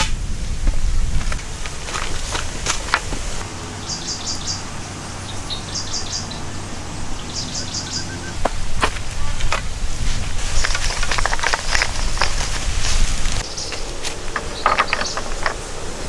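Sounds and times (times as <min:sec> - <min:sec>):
bird chirping: 0:03.4 - 0:11.4, 0:13.4 - 0:16.0.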